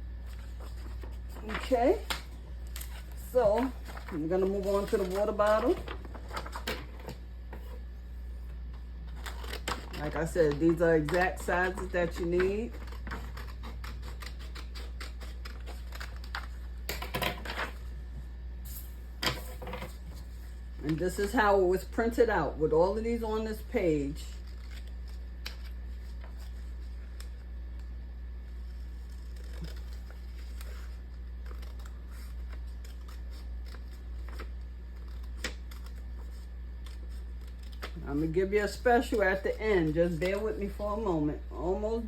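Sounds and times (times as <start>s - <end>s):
low steady hum: 0.0s - 42.0s
paper rustling: 0.2s - 7.8s, 28.5s - 40.8s
rustling handling noises: 0.2s - 13.5s.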